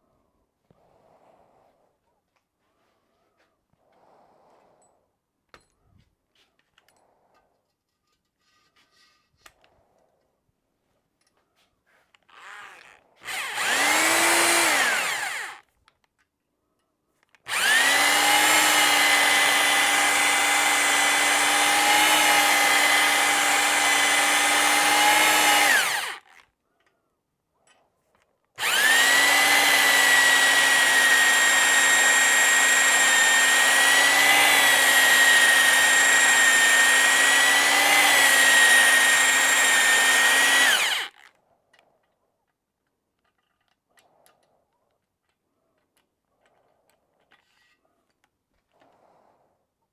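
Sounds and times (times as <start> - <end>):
electric drill spinning: 12.3 - 15.6, 17.5 - 26.4, 28.6 - 41.3.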